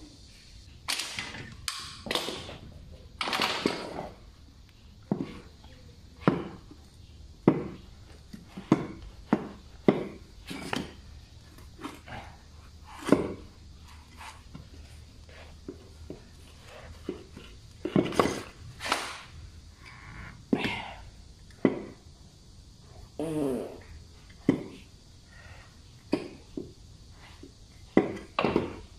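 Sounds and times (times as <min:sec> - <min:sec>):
tools and parts knocking and clicking: 0:03.2 - 0:04.0.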